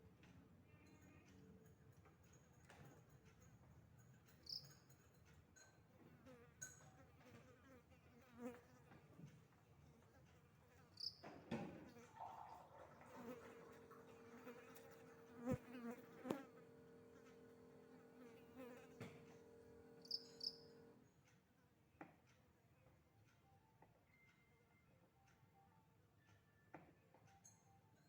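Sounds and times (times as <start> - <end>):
faint buzzing hum: 6.1 - 21.3.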